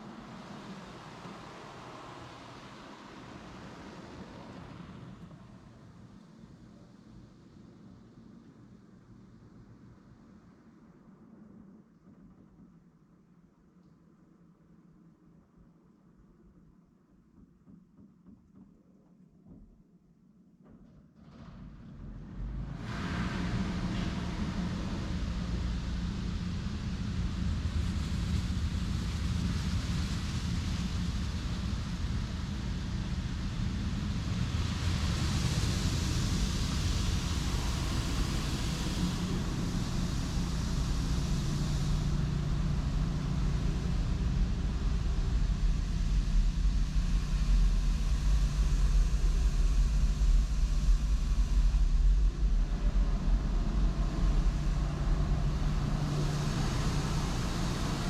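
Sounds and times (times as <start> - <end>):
low mechanical hum: 20.6 - 58.0
low rumble: 21.3 - 58.0.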